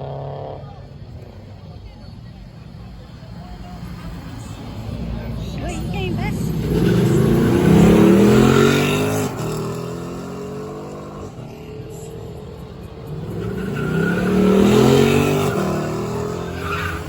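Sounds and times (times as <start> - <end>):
car engine revving hard: 6.3 - 11.4, 13.0 - 17.0.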